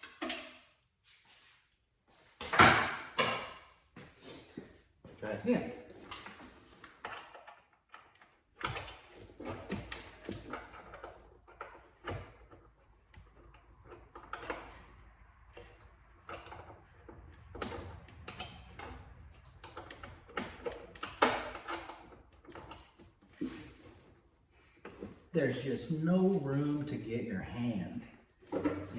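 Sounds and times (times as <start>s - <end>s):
tools clicking and knocking: 6.1s - 14.9s, 15.5s - 24.1s.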